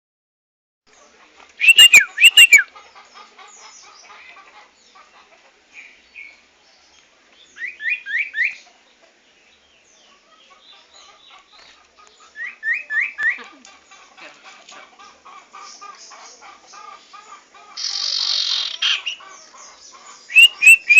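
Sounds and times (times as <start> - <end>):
soft bird twittering: 1.6 - 2.7, 17.8 - 20.9
whistled bird notes: 1.6 - 2.7, 20.3 - 20.9
loud sharp bird calls: 1.6 - 4.4, 15.0 - 20.9.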